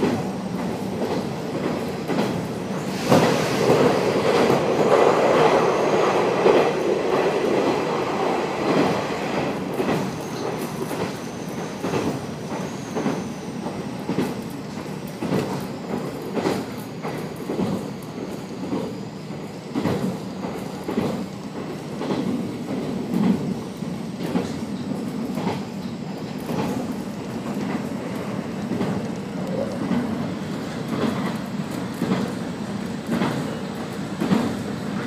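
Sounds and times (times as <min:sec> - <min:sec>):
train running rumble: 0:00.0 - 0:35.0
faint high wheel squeal: 0:10.0 - 0:13.6.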